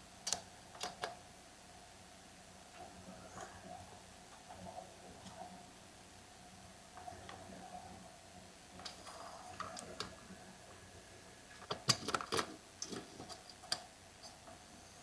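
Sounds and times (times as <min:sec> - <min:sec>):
faint steady hum: 0:00.0 - 0:15.0
small parts and tools clicking: 0:11.6 - 0:14.6.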